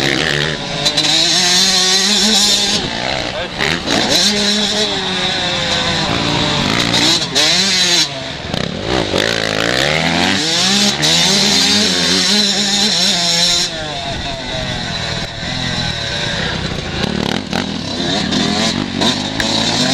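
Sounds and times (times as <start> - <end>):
motocross bike engines revving: 0.0 - 19.9.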